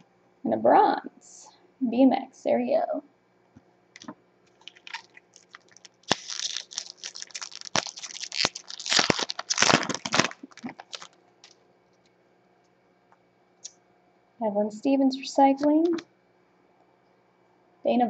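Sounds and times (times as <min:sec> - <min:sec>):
plastic wrapper tearing and crinkling: 0:04.0 - 0:11.6.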